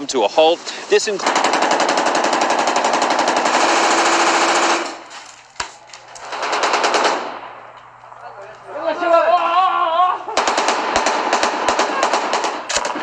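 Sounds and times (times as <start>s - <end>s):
automatic gunfire: 1.2s - 5.0s, 6.2s - 7.6s, 10.4s - 13.0s.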